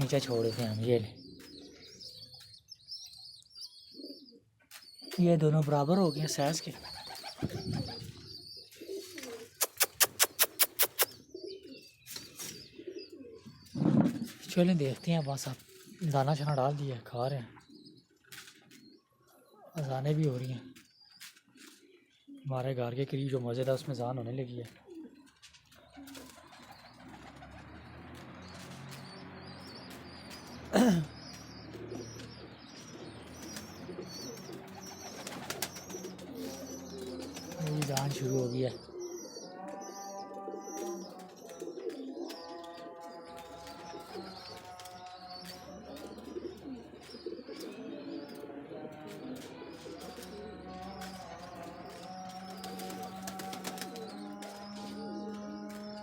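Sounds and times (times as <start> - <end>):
pigeons cooing: 0.0 - 5.3, 6.1 - 14.6, 24.6 - 56.0
sharp clicks: 9.6 - 11.2
distant call to prayer over loudspeaker: 26.3 - 56.0.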